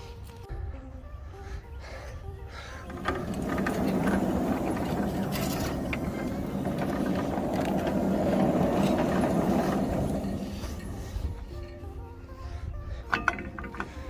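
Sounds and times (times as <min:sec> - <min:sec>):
sawmill machinery running: 0:02.5 - 0:14.0.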